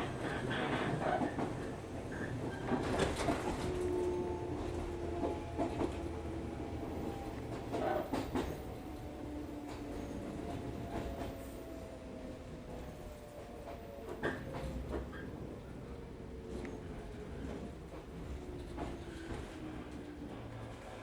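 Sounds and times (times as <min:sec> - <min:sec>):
train wheels clacking: 0:00.0 - 0:11.7, 0:12.8 - 0:15.6
train wheels rumbling on track: 0:00.0 - 0:21.0.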